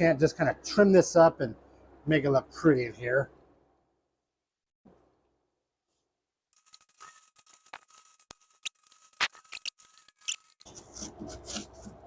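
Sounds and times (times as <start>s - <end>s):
foam snapping and cracking: 6.6s - 10.6s.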